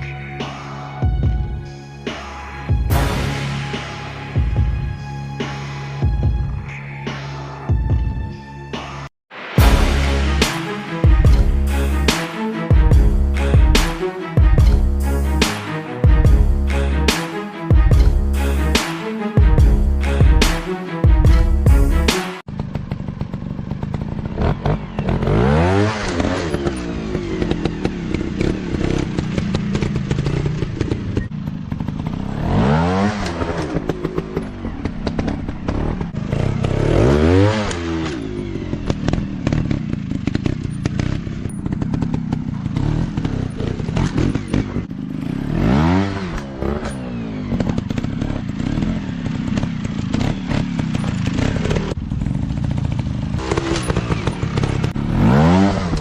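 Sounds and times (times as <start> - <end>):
dirt bike engines revving: 22.5 - 56.0.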